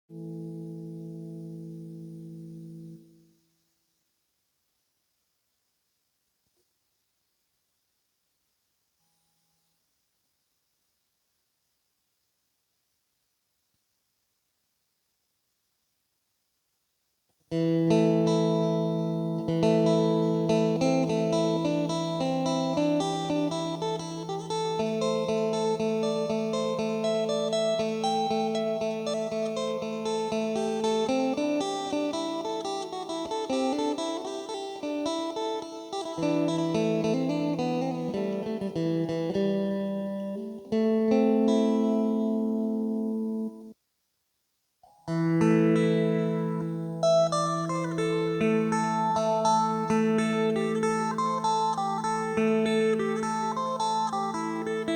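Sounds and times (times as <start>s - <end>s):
plucked electric lute melody: 0.2s - 3.0s, 17.5s - 43.7s, 45.0s - 54.9s.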